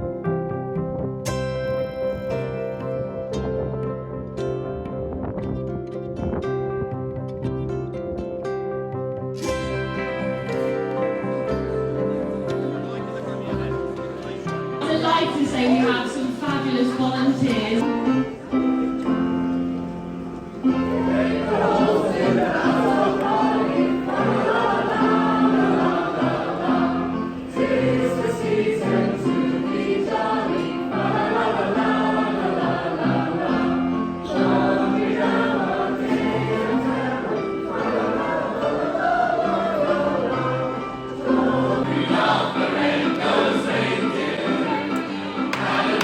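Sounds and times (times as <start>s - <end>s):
instrumental accompaniment: 0.0s - 46.0s
choir singing: 10.2s - 17.9s, 20.5s - 46.0s.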